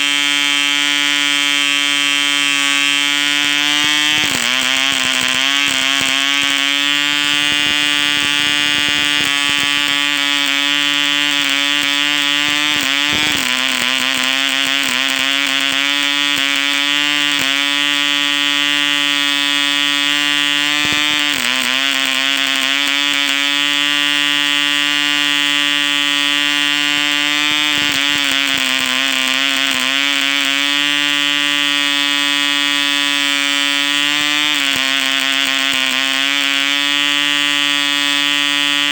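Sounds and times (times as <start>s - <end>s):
model engine high-pitched buzz: 0.0s - 38.9s.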